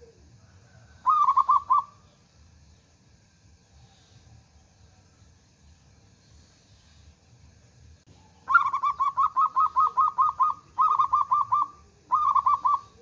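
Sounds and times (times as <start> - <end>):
dove rapid staccato cooing: 0.0 - 2.0, 8.2 - 13.0.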